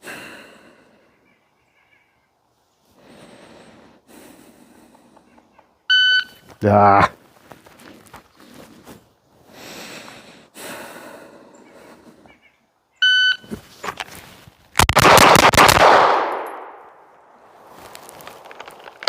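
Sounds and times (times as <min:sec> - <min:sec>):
shot timer beep: 0:05.9 - 0:06.4, 0:13.0 - 0:13.4
rapid pistol shots: 0:14.8 - 0:16.8.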